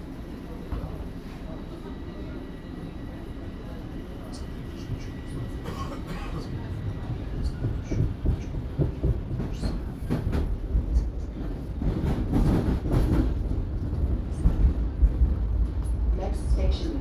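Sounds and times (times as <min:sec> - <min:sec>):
subway train wheels rumbling on rail: 0:00.0 - 0:17.0
clacks and knocks: 0:07.1 - 0:14.8.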